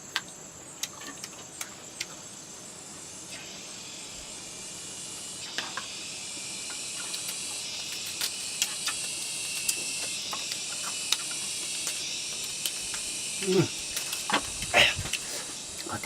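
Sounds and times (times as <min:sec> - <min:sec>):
insect chorus shrill drone: 0:00.0 - 0:16.0.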